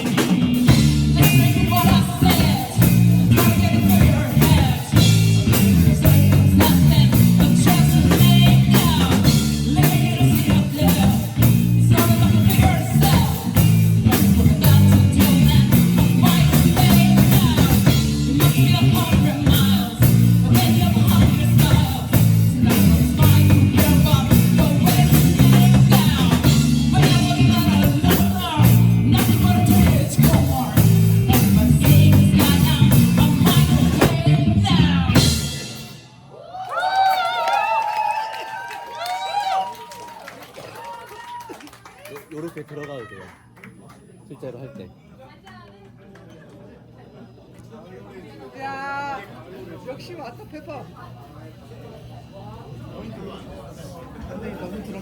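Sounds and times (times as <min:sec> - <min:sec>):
person singing: 0:00.0 - 0:35.6
drum kit beat: 0:00.0 - 0:36.2
live rock band playing: 0:00.0 - 0:36.2.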